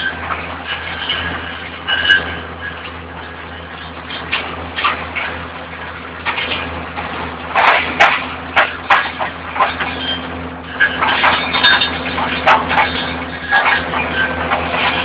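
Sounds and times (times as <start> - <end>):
vacuum excavator drone: 0.0 - 15.0
stones clattering through suction hose: 6.2 - 9.9.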